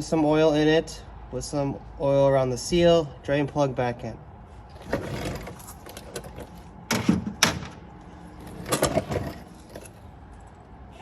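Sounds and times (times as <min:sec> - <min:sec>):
tools clacking and rattling: 0:08.4 - 0:10.6.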